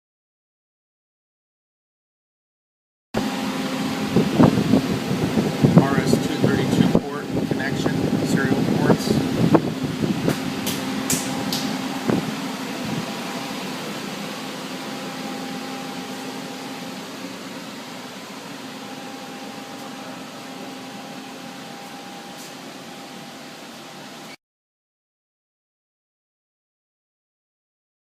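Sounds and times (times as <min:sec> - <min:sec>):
machining center humming: 0:03.2 - 0:24.4.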